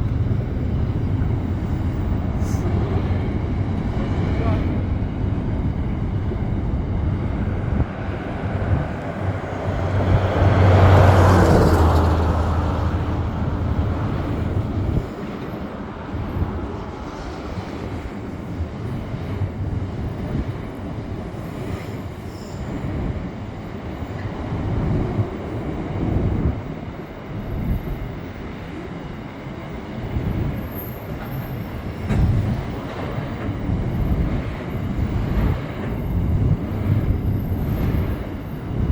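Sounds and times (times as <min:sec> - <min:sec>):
heavy engine passing by: 0:00.0 - 0:17.5.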